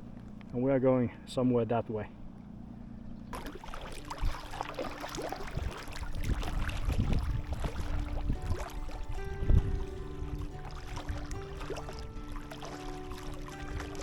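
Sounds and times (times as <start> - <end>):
paddle splashing water: 3.3 - 14.0.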